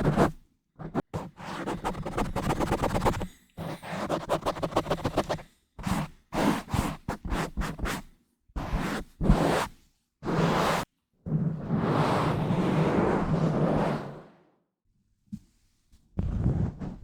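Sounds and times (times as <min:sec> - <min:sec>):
scratching on microphone: 0:00.0 - 0:03.2, 0:16.2 - 0:17.0.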